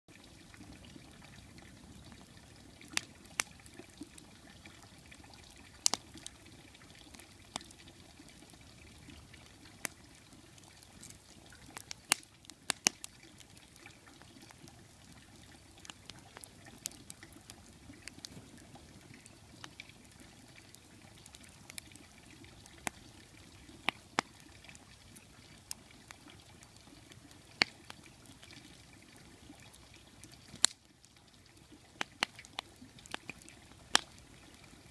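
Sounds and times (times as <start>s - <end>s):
campfire crackling: 0.1s - 34.9s
low rustle of flames: 0.1s - 34.9s.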